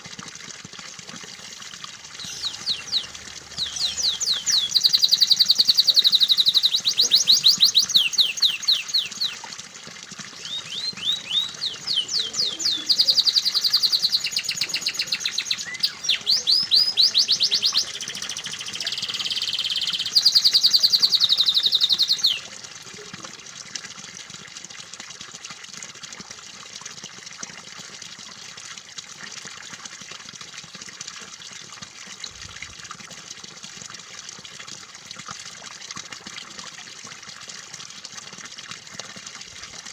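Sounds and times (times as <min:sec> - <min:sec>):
running water: 0:00.0 - 0:39.9
canary singing: 0:02.2 - 0:09.4, 0:10.4 - 0:22.4.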